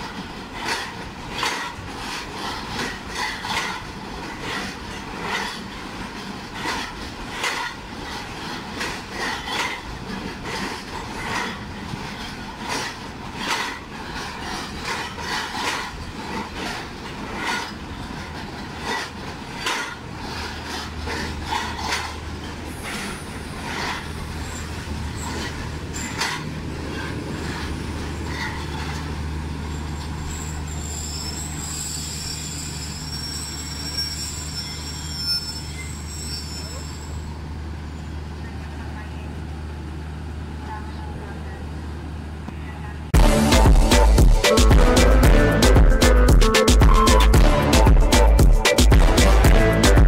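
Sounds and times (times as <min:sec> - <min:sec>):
train wheels clacking over rail joints: 0:00.0 - 0:37.3
high-pitched wheel squeal: 0:29.6 - 0:38.2.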